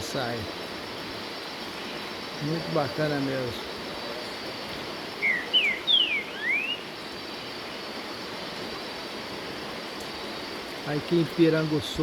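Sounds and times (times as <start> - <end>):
waterfall rushing: 0.0 - 12.0
whistled bird notes: 5.2 - 7.0.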